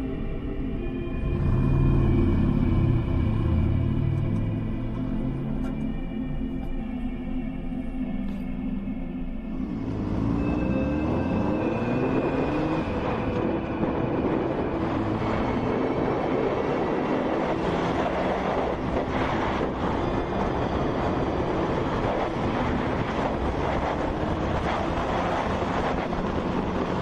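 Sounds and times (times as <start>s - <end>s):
road or wind noise: 0.0s - 27.0s
vehicle mechanical rumble: 0.0s - 27.0s.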